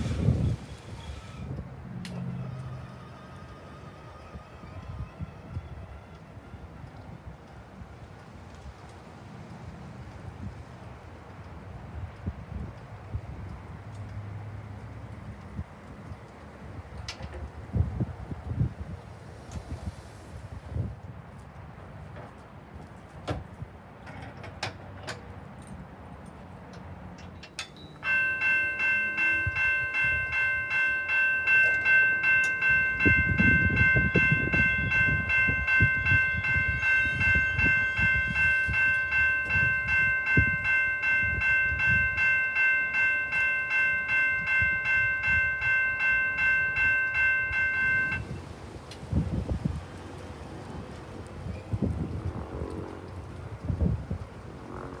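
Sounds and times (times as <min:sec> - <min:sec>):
railroad crossing bell ringing: 0:01.9 - 0:07.6, 0:27.3 - 0:48.5.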